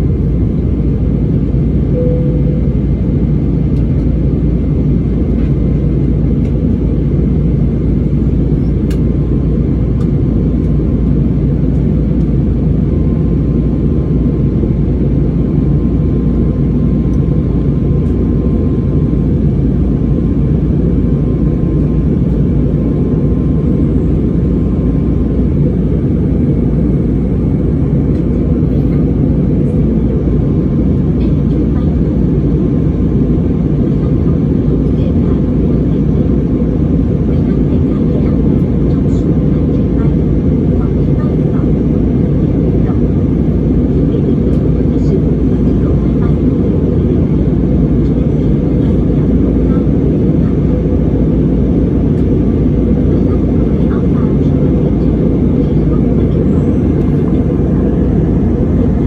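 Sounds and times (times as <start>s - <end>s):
faint steady hum: 0.0s - 5.4s
engines and airflow rumble: 0.0s - 59.0s.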